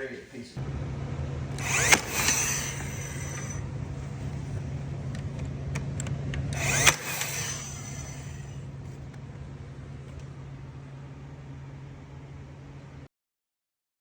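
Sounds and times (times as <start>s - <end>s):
loud bursts with high ringing: 1.5s - 4.6s, 6.6s - 8.8s
power tool humming: 1.5s - 9.2s.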